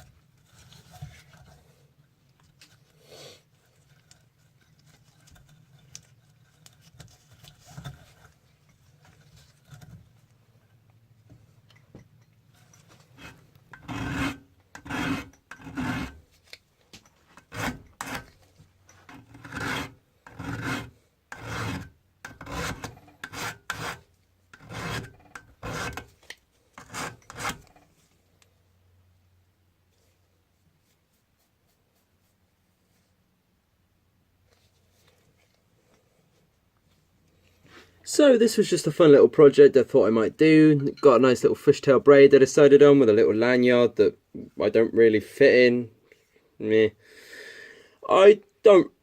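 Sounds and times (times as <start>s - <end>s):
rasping strokes on knife blade: 12.6s - 16.2s, 17.4s - 26.2s, 26.8s - 27.8s.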